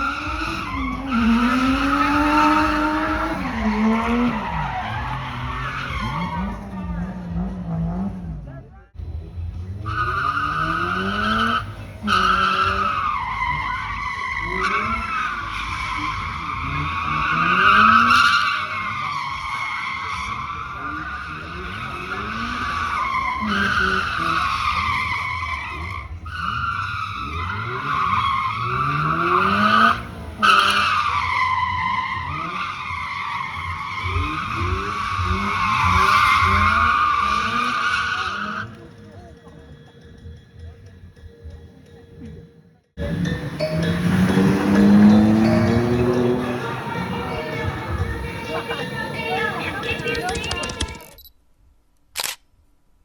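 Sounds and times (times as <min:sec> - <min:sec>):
car engine revving: 0:00.0 - 0:42.4, 0:43.0 - 0:51.0
tyres screeching: 0:43.0 - 0:51.2.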